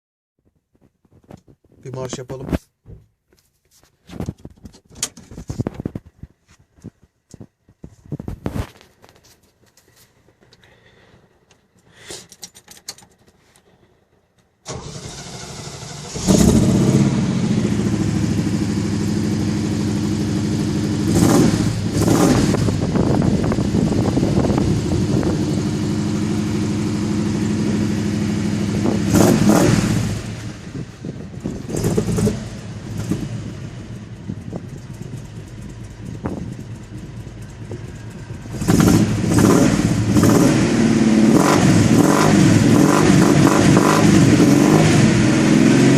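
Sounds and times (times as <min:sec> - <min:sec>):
car engine idling and revving: 0:12.8 - 0:45.9.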